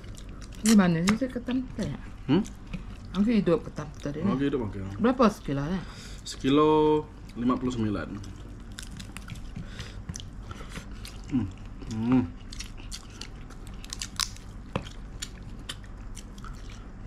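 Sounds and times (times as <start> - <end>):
person chewing crunchy food: 0.0 - 1.2, 7.1 - 17.0.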